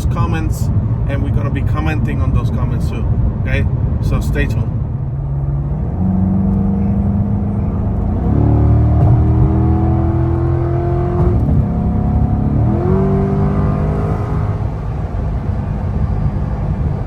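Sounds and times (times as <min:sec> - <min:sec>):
car engine accelerating: 0:04.7 - 0:17.0.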